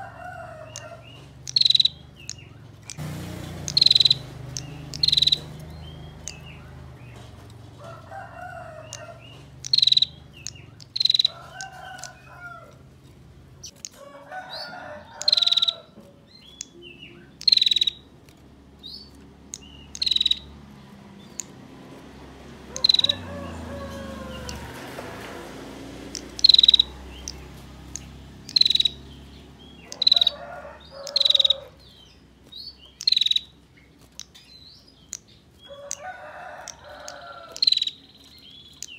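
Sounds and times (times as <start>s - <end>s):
faint calls of other birds: 0.0s - 12.9s, 13.6s - 18.1s, 21.2s - 25.4s, 26.2s - 34.7s
bird churring calls: 0.6s - 7.5s, 8.8s - 12.3s, 14.5s - 18.1s, 18.8s - 20.6s, 22.7s - 23.7s, 26.1s - 32.0s, 32.8s - 33.6s, 37.0s - 38.9s.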